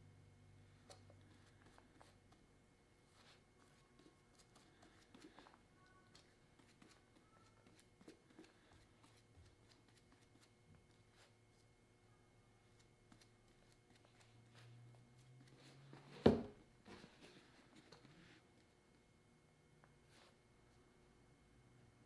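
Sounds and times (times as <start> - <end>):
faint clicks and handling sounds: 16.8 - 19.1.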